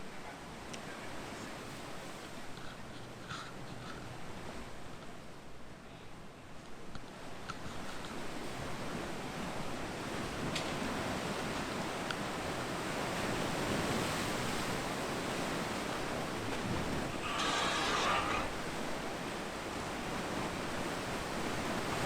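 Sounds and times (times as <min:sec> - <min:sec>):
ocean surf washing ashore: 0:07.1 - 0:22.0.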